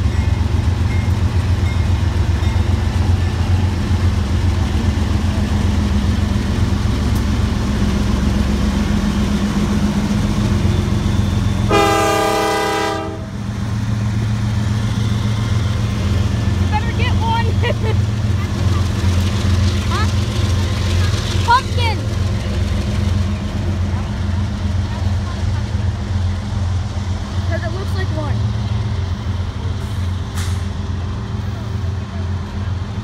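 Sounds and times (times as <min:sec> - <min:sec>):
freight train rumbling past: 0:00.0 - 0:33.0
train chime horn: 0:11.6 - 0:13.3.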